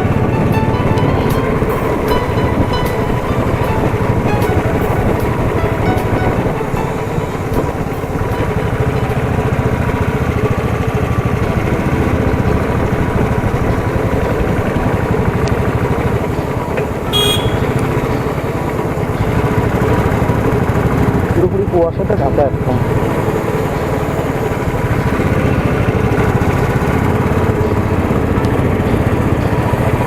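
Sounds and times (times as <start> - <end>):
motorcycle engine rumbling: 0.0 - 30.0
horn toot: 17.1 - 18.0.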